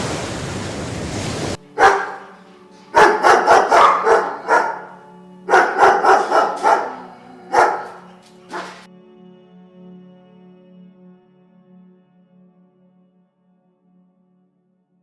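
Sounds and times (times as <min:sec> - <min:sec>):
soft background music of held tones: 0:01.6 - 0:14.4
dog barking: 0:01.7 - 0:08.9.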